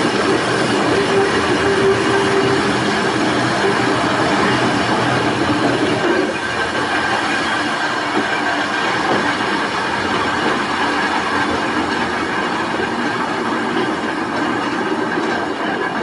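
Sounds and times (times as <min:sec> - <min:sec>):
wheels on rail: 0:00.0 - 0:16.0.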